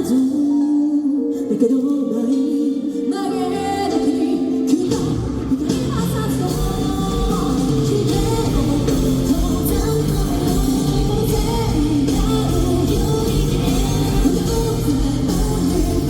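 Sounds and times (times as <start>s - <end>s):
person singing: 0.0s - 16.0s
drum kit: 3.9s - 16.0s
distorted electric guitars: 4.8s - 16.0s.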